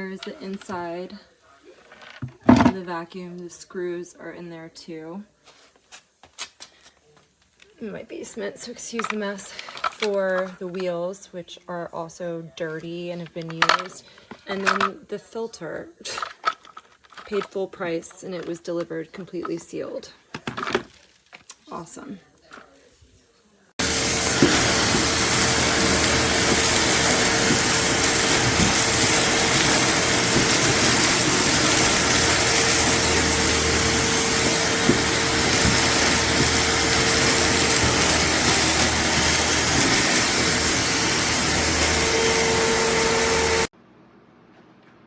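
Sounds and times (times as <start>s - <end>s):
shop vacuum running: 23.8s - 43.7s.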